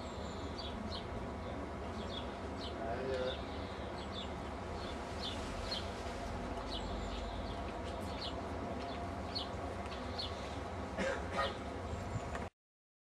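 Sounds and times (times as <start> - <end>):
small birds chirping: 0.0 - 10.7
low outdoor rumble: 0.0 - 12.5.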